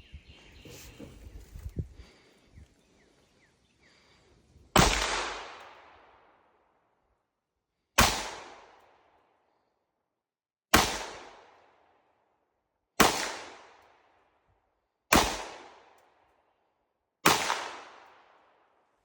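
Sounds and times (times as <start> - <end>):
gunshots with echo: 4.8 - 6.2, 8.0 - 8.8.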